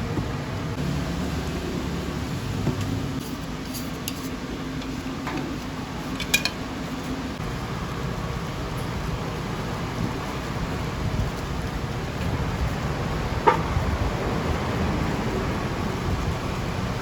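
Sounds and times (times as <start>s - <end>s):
metal utensils clinking: 3.7s - 6.7s.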